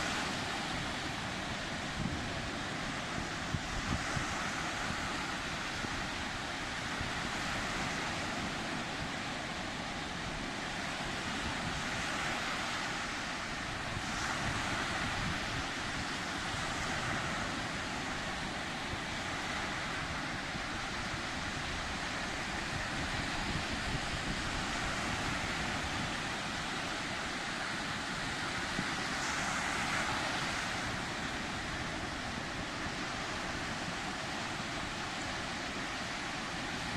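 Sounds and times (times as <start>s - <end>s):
sea waves breaking on shore: 0.0s - 36.9s
wind on microphone: 0.0s - 36.9s.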